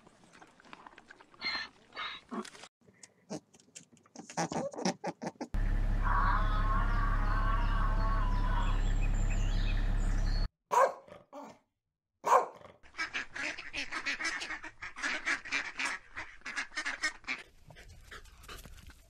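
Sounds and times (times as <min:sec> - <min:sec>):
low hum: 0:05.6 - 0:10.5
duck quacking: 0:12.9 - 0:17.4.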